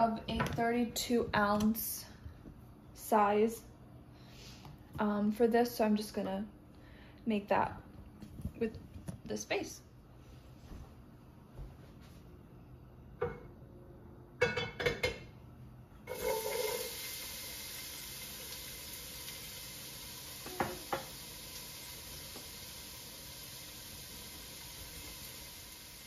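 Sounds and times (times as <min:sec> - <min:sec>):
onion sizzling in hot oil: 0:16.1 - 0:26.0.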